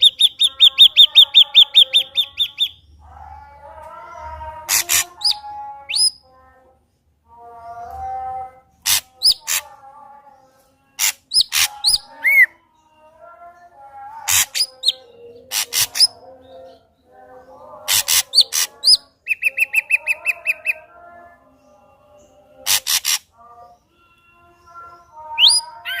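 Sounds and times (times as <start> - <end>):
bird singing varied song: 0.0 - 6.7, 7.3 - 26.0.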